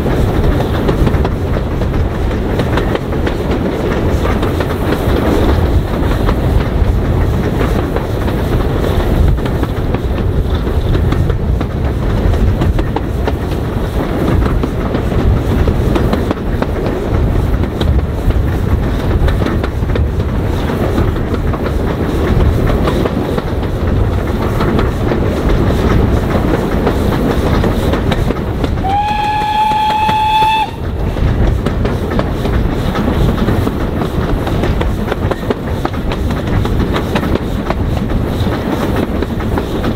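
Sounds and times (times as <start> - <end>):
train rumbling on rails: 0.0 - 39.9
train whistle blast: 28.8 - 30.9.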